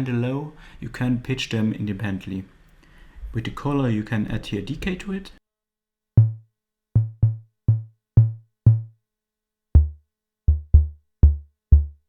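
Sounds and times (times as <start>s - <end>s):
drum machine tom hits: 6.2s - 9.0s, 9.8s - 12.0s.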